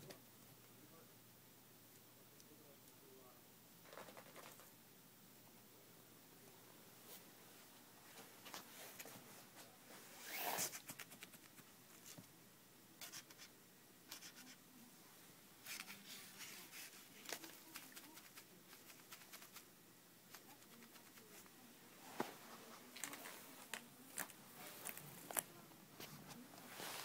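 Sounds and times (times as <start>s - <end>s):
pet scratching and rustling: 15.6s - 19.7s.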